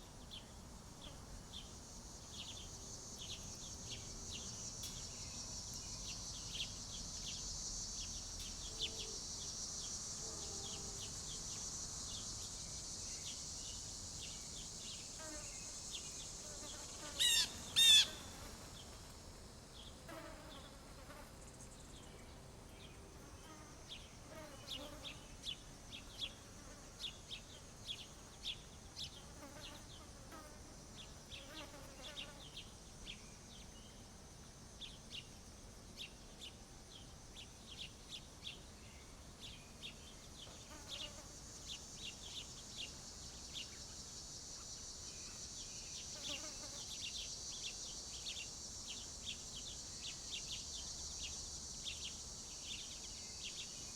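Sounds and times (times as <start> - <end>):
high-pitched insect buzz: 1.0 - 18.9, 39.8 - 53.9
small birds chirping: 13.2 - 18.5.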